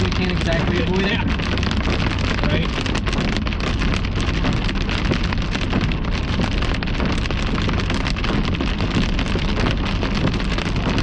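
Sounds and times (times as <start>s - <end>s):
hail and rain pelting a car: 0.0s - 11.0s
moving car rumble: 0.0s - 11.0s.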